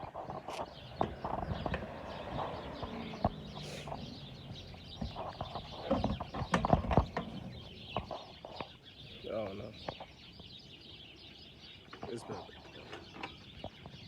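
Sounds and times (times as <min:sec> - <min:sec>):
birds chirping: 0:00.0 - 0:14.0
sharp clicks and knocks: 0:04.8 - 0:08.7.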